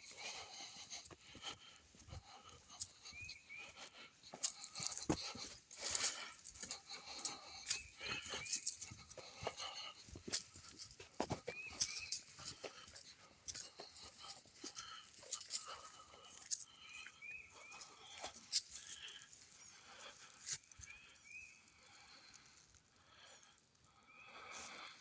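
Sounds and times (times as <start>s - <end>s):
footsteps crunching on dry leaves: 3.7s - 19.5s
bird chirping: 6.7s - 9.8s, 11.4s - 12.6s, 16.7s - 19.9s.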